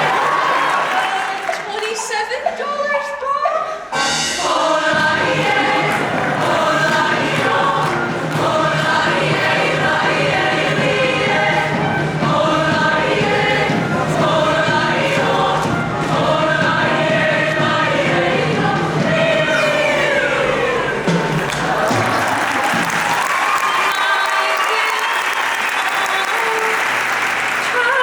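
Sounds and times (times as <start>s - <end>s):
choir singing: 0.0s - 1.6s, 3.9s - 24.4s
instrumental accompaniment: 3.9s - 23.0s.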